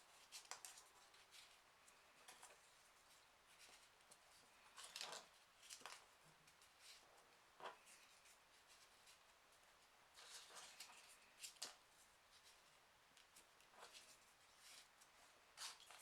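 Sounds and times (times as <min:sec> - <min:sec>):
paper rustling and crinkling: 0:00.2 - 0:09.4, 0:10.1 - 0:16.0.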